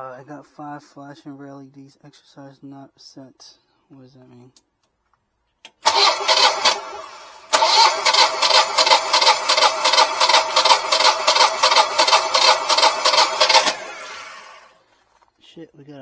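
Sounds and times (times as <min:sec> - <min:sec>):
generator engine cranking: 0:05.8 - 0:14.8.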